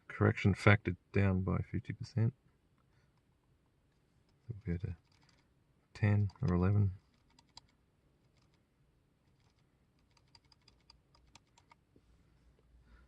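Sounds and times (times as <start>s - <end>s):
faint keyboard keystrokes: 9.4s - 11.8s.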